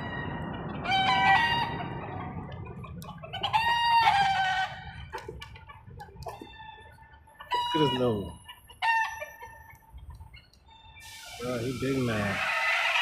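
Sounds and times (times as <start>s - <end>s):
rooster crowing: 0.0s - 2.0s, 3.5s - 4.9s, 12.2s - 13.0s
steady background hiss: 11.0s - 12.4s.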